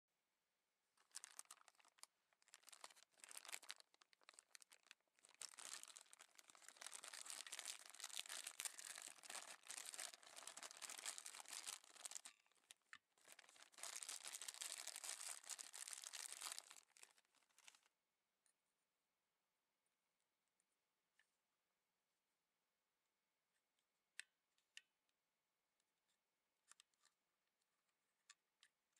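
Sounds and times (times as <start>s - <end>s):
plastic packaging crinkling and tearing: 1.0s - 17.9s.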